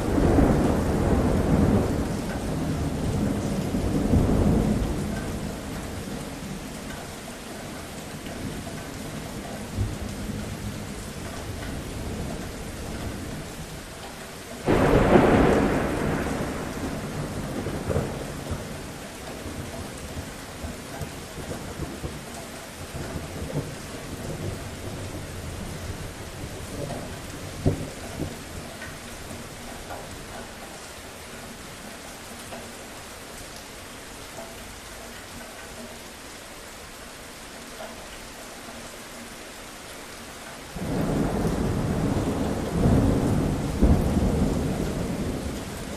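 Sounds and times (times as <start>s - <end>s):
thunderclap rumbling: 0.0s - 6.5s, 14.6s - 22.2s, 22.9s - 30.4s, 40.8s - 45.9s
steady rain: 0.0s - 45.9s.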